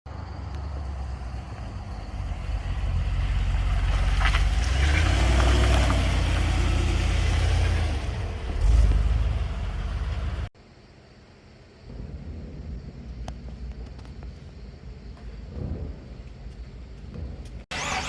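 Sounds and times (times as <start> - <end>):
car engine running through exhaust: 0.1 - 10.6.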